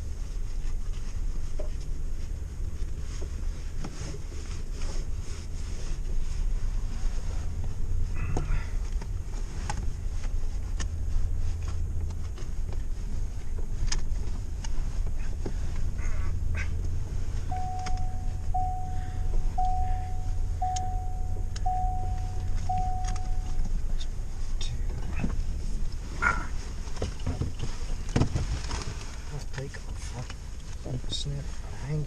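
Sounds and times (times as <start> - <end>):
vehicle rumbling on rough trail: 0.0 - 32.0
dashboard warning chime: 17.5 - 24.0.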